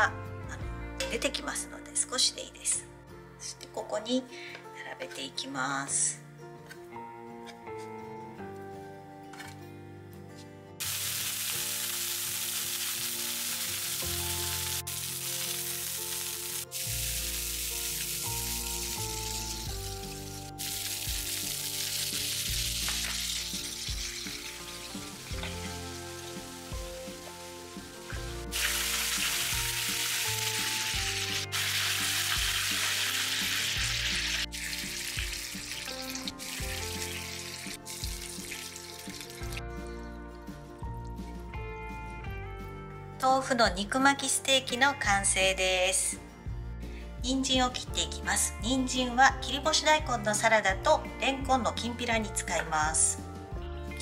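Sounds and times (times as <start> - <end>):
soft background music: 0.0 - 54.0
food sizzling in oil: 10.8 - 39.6.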